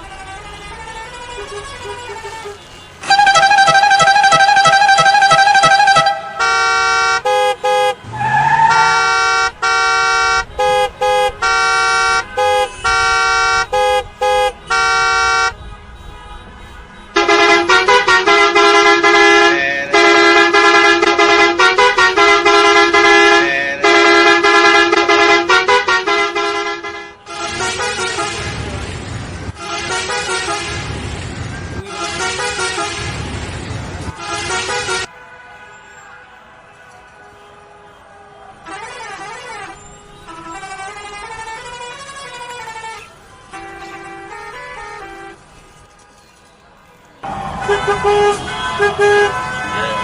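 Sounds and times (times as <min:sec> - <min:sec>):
cartoon horn honks: 0:00.0 - 0:15.6, 0:17.2 - 0:28.5, 0:47.2 - 0:50.0
warbling horn: 0:00.0 - 0:15.6, 0:47.2 - 0:50.0.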